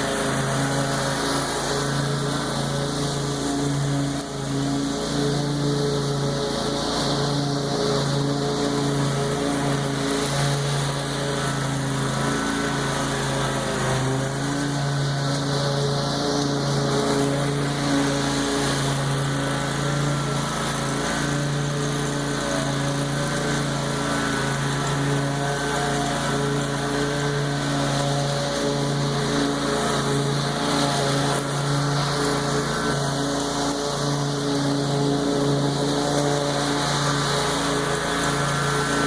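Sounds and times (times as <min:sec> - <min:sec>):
lawn mower engine cutting grass: 0:00.0 - 0:39.0.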